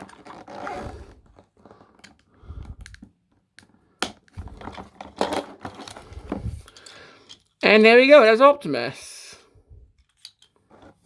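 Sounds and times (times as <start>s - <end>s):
plastic packaging clicks and rustles: 1.2s - 7.6s.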